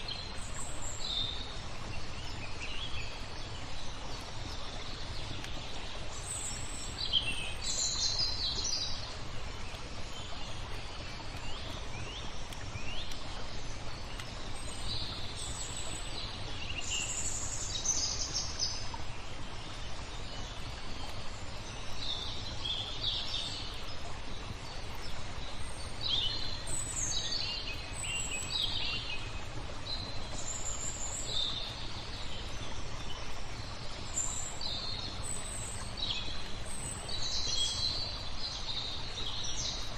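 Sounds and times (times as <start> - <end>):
low background noise: 0.0 - 39.9
small birds chirping: 0.0 - 39.9.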